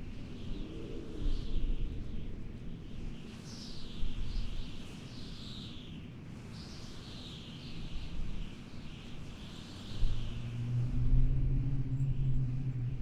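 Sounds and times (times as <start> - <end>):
low wind rumble: 0.0 - 4.5, 9.2 - 13.0
low steady hum: 10.0 - 13.0.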